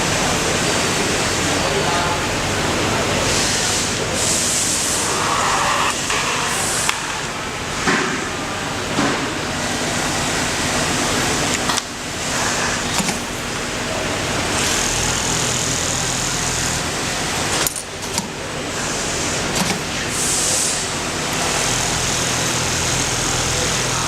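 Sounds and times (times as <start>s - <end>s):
sewing machine motor hum: 10.3s - 24.0s.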